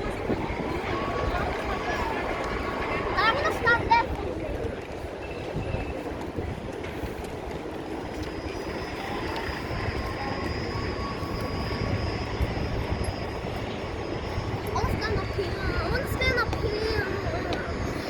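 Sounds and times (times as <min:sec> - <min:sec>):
aircraft engine rumble: 0:05.8 - 0:18.0
thin high whine: 0:08.0 - 0:18.0.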